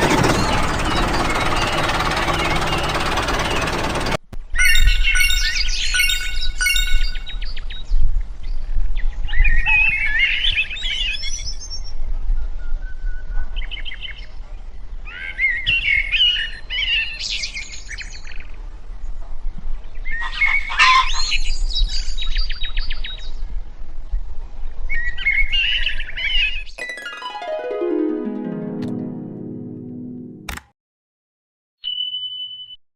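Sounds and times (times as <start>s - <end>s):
birds chirping and trilling: 0.0s - 4.0s, 4.6s - 7.8s.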